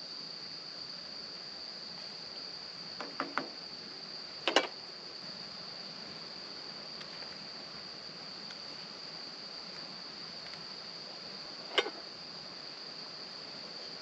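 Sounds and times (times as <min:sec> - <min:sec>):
insects trilling: 0:00.0 - 0:14.0
loud knock: 0:03.0 - 0:03.6.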